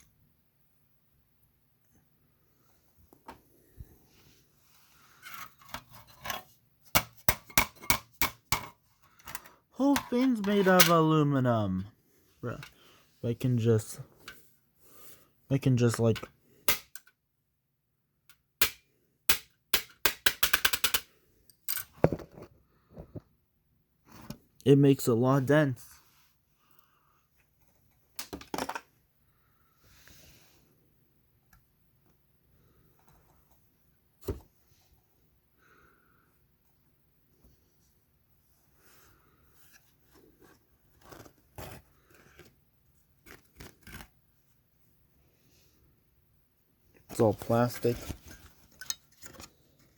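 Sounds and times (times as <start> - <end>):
scraping and rustling of toy parts: 4.1 - 7.9, 8.6 - 11.2, 37.4 - 44.8, 46.9 - 49.9.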